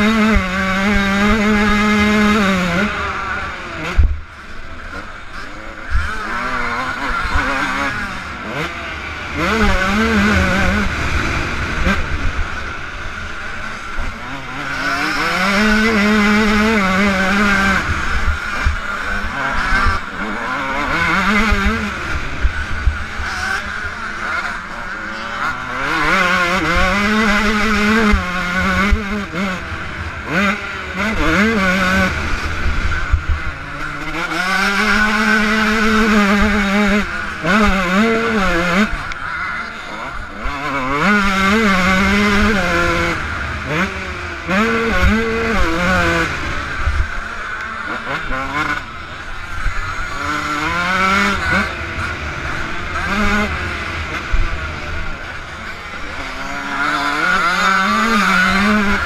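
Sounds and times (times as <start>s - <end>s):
two-stroke motocross engine revving: 0.0s - 59.0s
wind rumble on camera: 20.9s - 23.3s.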